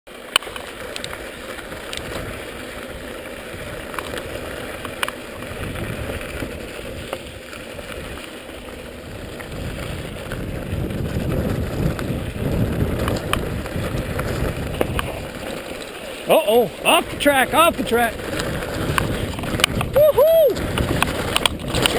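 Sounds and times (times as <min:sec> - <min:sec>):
bike frame and chain rattle: 0:00.1 - 0:21.9
bike tyres rolling on dirt trail: 0:00.1 - 0:21.9
wind on microphone: 0:05.3 - 0:08.2, 0:09.0 - 0:15.6, 0:16.9 - 0:21.9.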